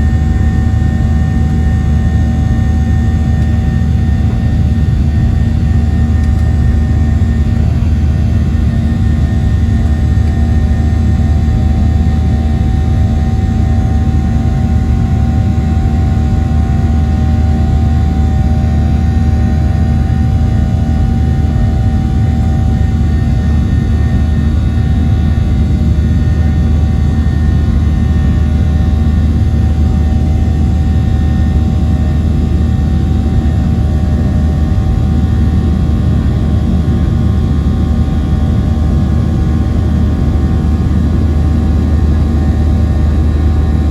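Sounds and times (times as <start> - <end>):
jet engine and airflow rush: 0.0 - 43.9.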